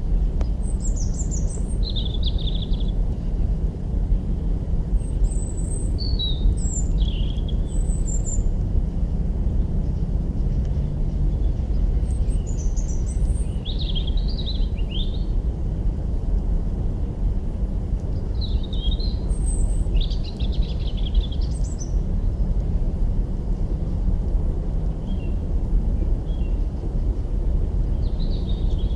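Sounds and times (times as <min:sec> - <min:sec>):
steady low rumble: 0:00.0 - 0:28.9
small bird chirping: 0:00.6 - 0:03.0.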